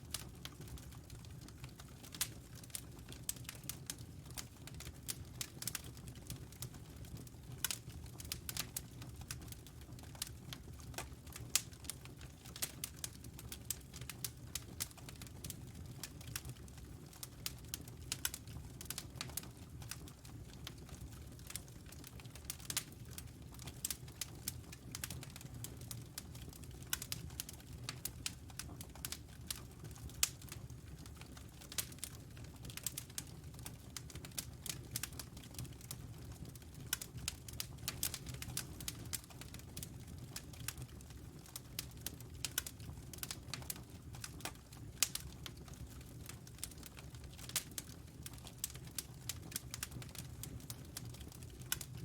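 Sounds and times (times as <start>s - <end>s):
wood fire crackling: 0.0s - 52.0s.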